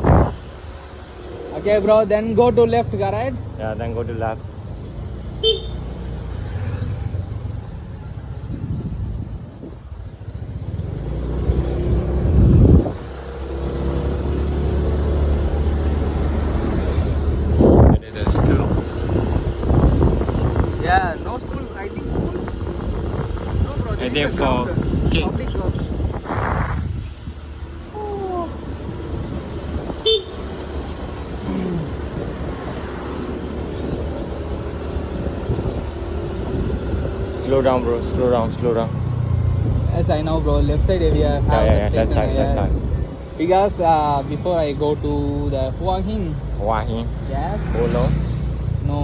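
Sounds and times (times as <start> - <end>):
motorbike engine: 0.0 - 49.0
road rumble: 0.0 - 49.0
horn toot: 5.4 - 6.0, 29.9 - 30.6.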